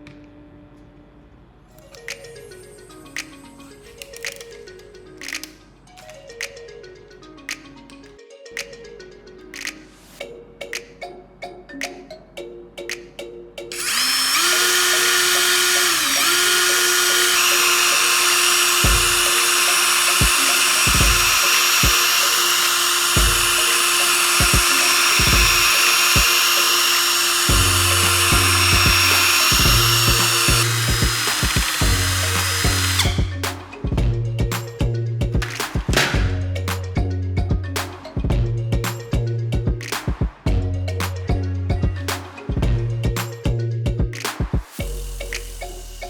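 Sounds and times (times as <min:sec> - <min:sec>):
electric motor tool whining: 0:13.7 - 0:33.4.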